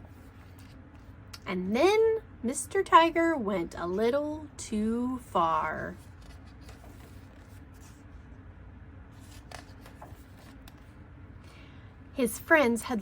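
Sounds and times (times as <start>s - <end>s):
paper pages rustling: 0.0s - 1.1s, 5.9s - 8.1s, 9.2s - 11.0s
low steady hum: 0.0s - 13.0s.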